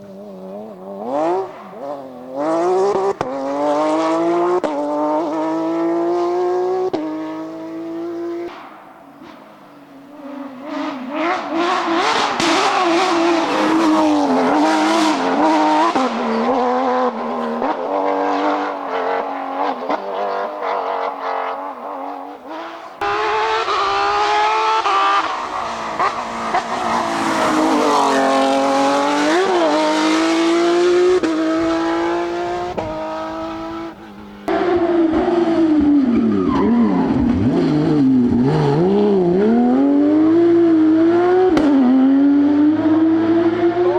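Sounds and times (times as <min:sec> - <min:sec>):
rally car engines revving: 0:00.0 - 0:43.9
car passing close: 0:22.6 - 0:34.9.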